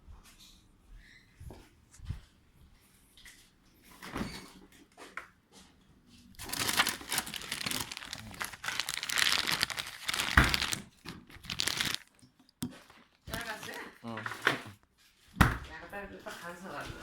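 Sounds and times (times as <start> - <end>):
crinkling and crumpling: 4.7 - 17.0.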